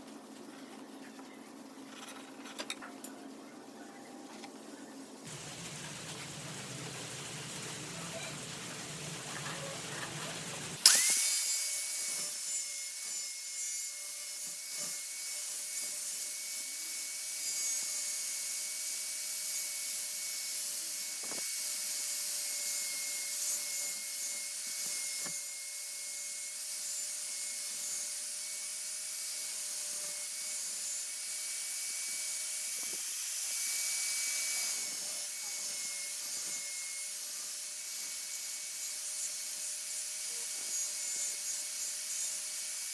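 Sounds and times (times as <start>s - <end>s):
power tool motor whine: 8.9s - 42.9s.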